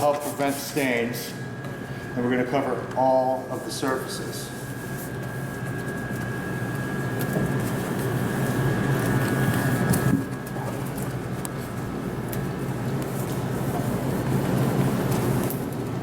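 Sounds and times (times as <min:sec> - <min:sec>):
thin high whine: 0:00.0 - 0:11.1
low mechanical hum: 0:00.0 - 0:16.0.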